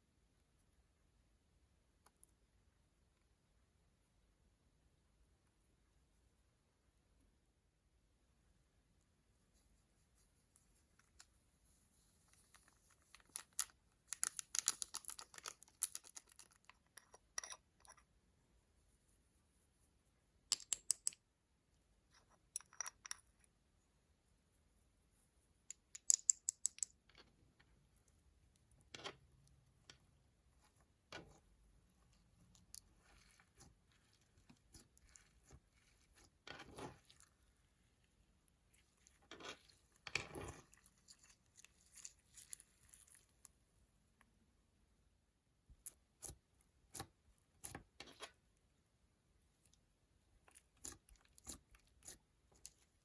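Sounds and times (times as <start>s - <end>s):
slime being worked: 28.3s - 43.6s, 49.6s - 53.0s.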